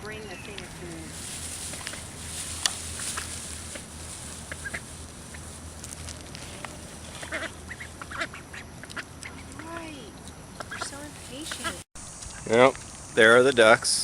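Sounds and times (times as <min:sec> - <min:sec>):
steady low hum: 0:00.0 - 0:14.0
ducks quacking: 0:04.4 - 0:05.5, 0:07.0 - 0:10.0, 0:10.6 - 0:12.5.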